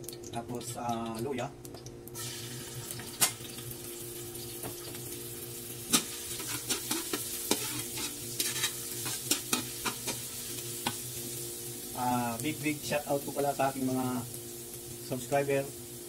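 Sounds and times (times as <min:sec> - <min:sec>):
ginger sizzling in hot oil: 0:00.0 - 0:16.0
metal spatula scraping a wok: 0:05.9 - 0:11.0.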